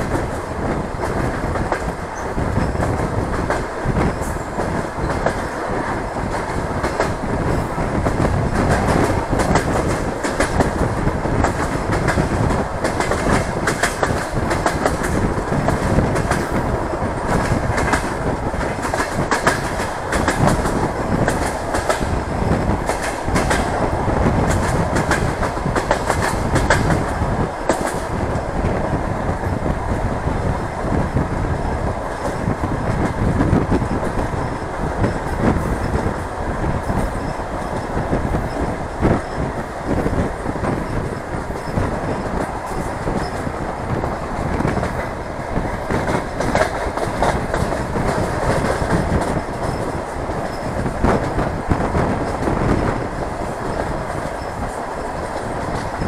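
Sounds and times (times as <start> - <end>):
train running noise: 0.0 - 56.0
wheels clattering over rails: 36.8 - 56.0.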